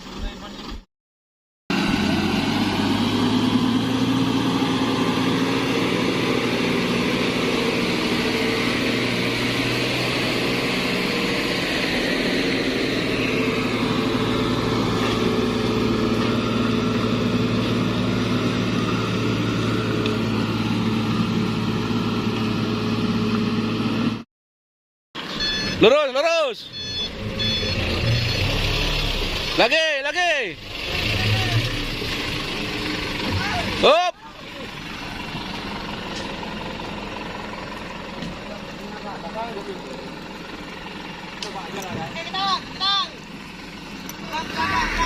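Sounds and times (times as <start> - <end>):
truck diesel engine drone: 1.7 - 24.2, 25.2 - 45.0.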